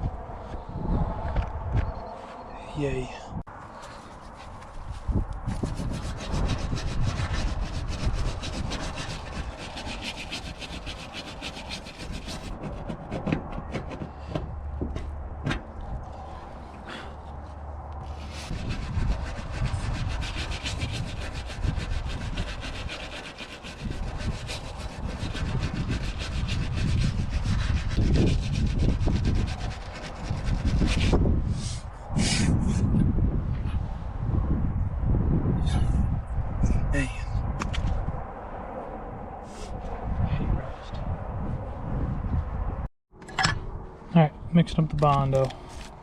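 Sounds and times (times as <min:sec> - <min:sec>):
hand sanding a steel panel: 0:04.0 - 0:14.4, 0:18.0 - 0:31.2.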